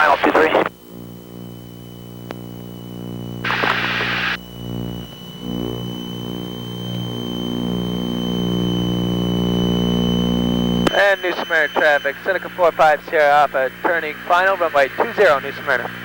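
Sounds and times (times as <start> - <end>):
radio static burst: 0.0 - 1.5, 2.3 - 16.0
thin high whine: 0.0 - 16.0
aircraft engines droning: 10.7 - 16.0.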